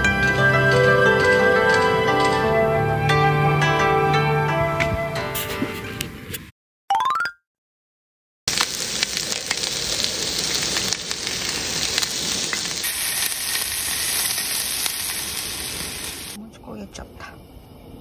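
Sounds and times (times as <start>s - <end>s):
chicken sizzling on griddle: 8.5s - 16.4s.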